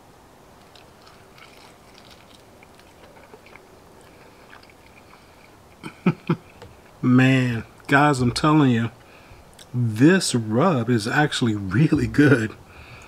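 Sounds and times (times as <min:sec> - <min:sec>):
crunching chicken wing: 0:00.6 - 0:07.0.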